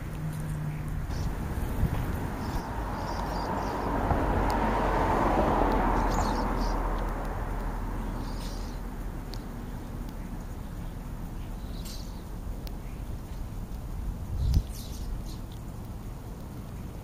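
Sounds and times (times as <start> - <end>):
vehicle passing: 0.0 - 12.5
faint bird chirps: 8.0 - 13.6, 14.4 - 16.2.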